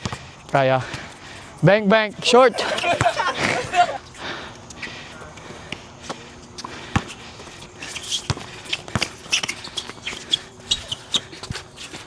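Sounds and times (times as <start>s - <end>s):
footsteps and shoe scuffs on court: 0.0s - 12.0s
basketball bouncing: 2.6s - 4.0s, 6.7s - 7.5s, 8.3s - 9.5s.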